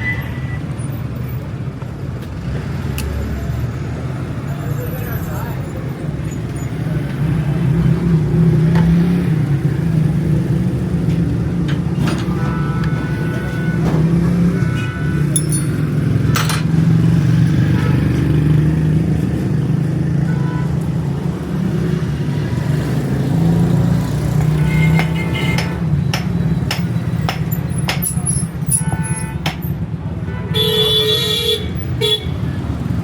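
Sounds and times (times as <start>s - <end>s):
sharp metallic clicks and knocks: 15.3s - 16.8s, 24.4s - 29.7s.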